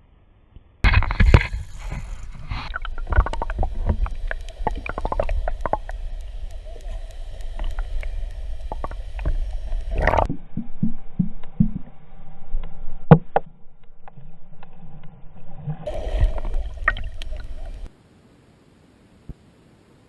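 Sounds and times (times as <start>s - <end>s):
boat engine rumble: 0.8s - 12.2s, 15.8s - 17.9s.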